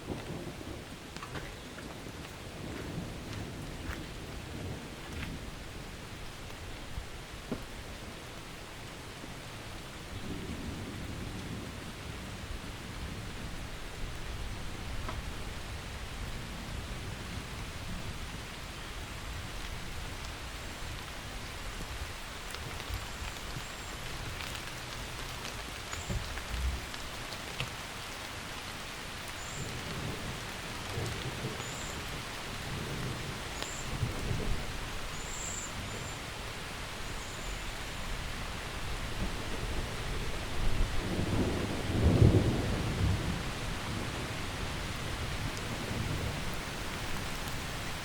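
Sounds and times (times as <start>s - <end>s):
thunder rumbling: 0.0s - 8.2s, 9.7s - 18.5s, 29.4s - 36.4s, 37.4s - 48.0s
steady rain: 0.0s - 48.0s.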